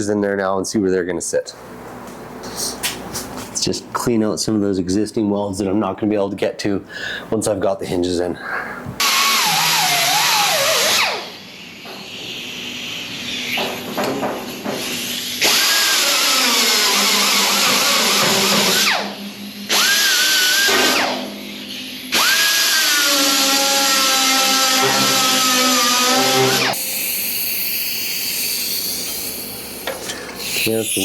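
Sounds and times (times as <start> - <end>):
power grinder grinding steel: 9.0 - 11.0, 15.5 - 19.0, 22.2 - 31.0.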